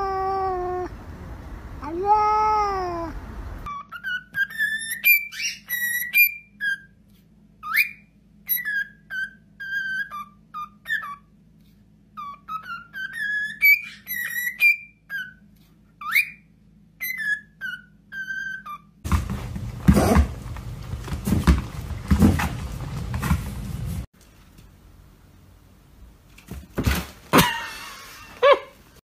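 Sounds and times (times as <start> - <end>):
cat meowing: 0.0 - 0.9, 1.8 - 3.2
cockatiel whistling a tune: 3.7 - 7.0, 7.6 - 11.3, 12.2 - 15.4, 16.0 - 18.9.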